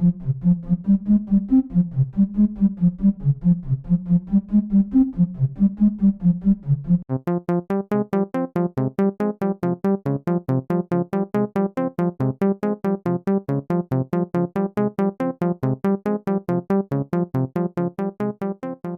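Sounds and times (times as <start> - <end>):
bright synth pattern with ticks: 0.0 - 18.9
synthesizer plucked notes: 0.0 - 18.9.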